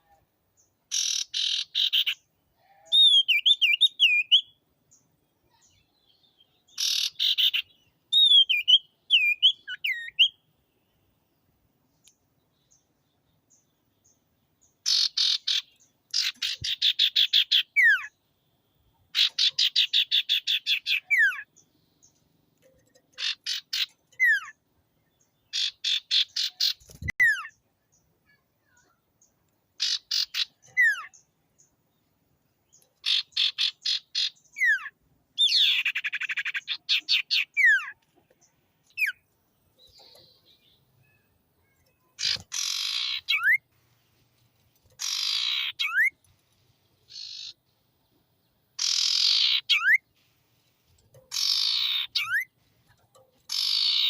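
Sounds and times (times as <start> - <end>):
bird wavering whistled phrases: 2.8 - 4.5.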